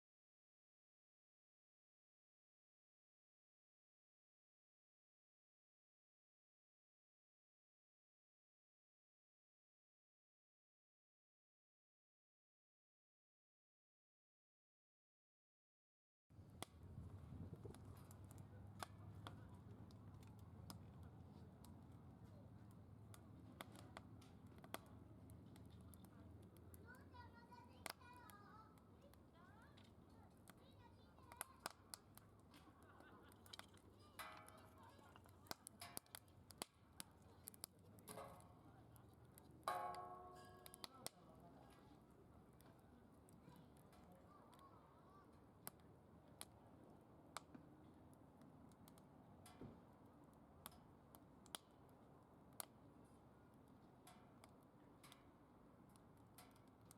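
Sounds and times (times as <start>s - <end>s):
fire crackling and popping: 16.4s - 56.9s
wood fire rumbling: 16.4s - 56.9s.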